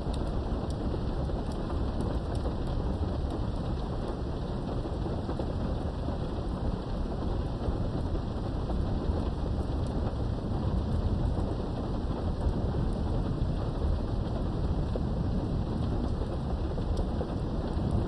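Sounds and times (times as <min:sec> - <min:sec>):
heavy rain behind a window: 0:00.0 - 0:18.0
low thunder rumble: 0:04.4 - 0:18.0.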